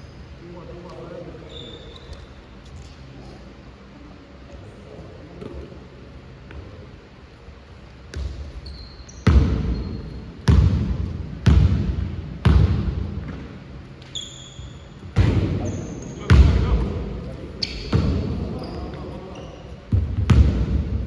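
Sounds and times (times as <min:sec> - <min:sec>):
sneaker squeak on court: 0:01.4 - 0:02.4, 0:08.1 - 0:10.6, 0:14.0 - 0:16.7, 0:17.5 - 0:20.3
basketball bouncing on gym floor: 0:08.1 - 0:14.2, 0:15.0 - 0:17.0, 0:17.6 - 0:19.1, 0:19.9 - 0:21.0.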